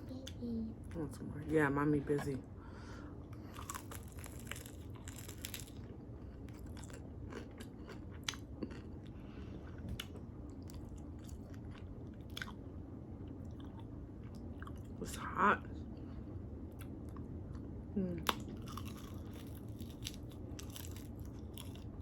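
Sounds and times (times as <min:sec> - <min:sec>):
person chewing: 0:03.4 - 0:12.6, 0:18.3 - 0:22.0
crunching chicken skin: 0:03.5 - 0:05.8, 0:18.6 - 0:22.0.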